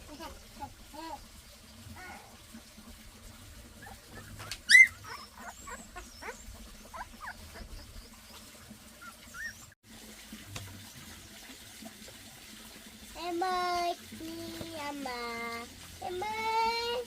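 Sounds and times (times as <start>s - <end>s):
small animal squeaking: 4.2s - 7.8s.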